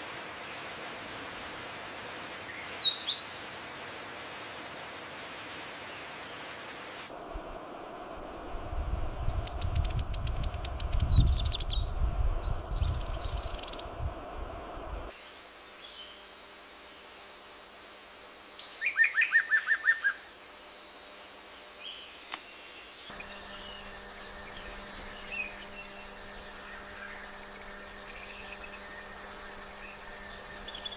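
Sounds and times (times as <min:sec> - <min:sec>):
high insect drone: 0:00.0 - 0:30.9
low rumble: 0:07.2 - 0:15.1
bird chirps: 0:22.8 - 0:30.9.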